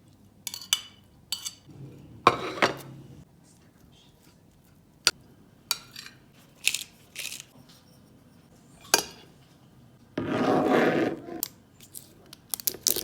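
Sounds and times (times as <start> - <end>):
utensils and dishes clinking: 0.5 - 3.2.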